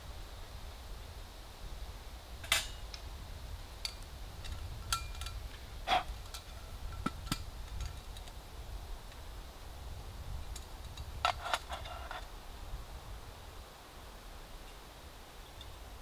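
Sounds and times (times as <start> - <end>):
brief rustle: 10.6 - 12.3.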